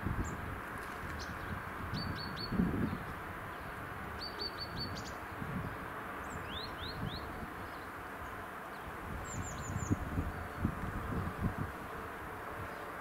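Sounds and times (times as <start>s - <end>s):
outdoor background noise: 0.0s - 13.0s
small birds chirping: 0.2s - 13.0s.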